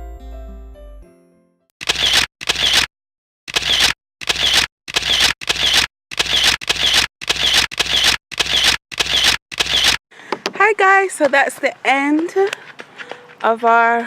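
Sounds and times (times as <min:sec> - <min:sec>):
camera shutter clicks: 0:01.8 - 0:02.9, 0:03.5 - 0:10.0.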